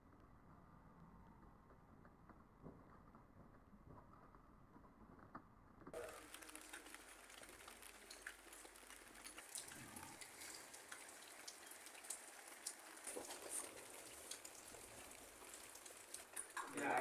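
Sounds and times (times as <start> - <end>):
faint rain: 0.0 - 17.0
drops ticking on a surface: 6.0 - 17.0.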